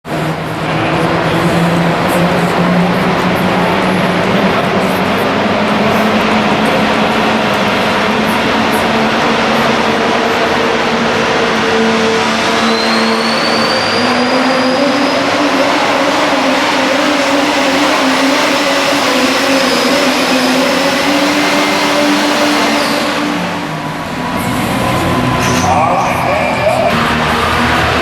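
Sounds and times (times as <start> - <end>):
diesel truck engine under load: 0.1 - 28.0
turbocharger whistle: 11.9 - 28.0.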